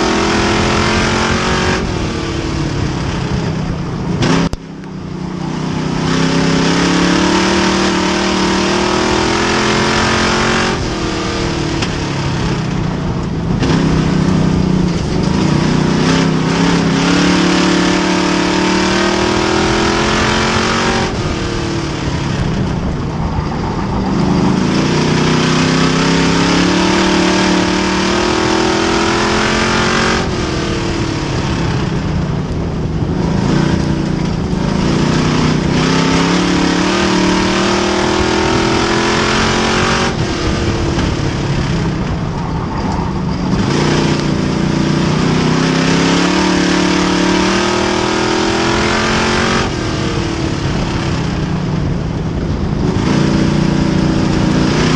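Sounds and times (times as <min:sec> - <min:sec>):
race car engine accelerating: 0:00.0 - 0:54.9.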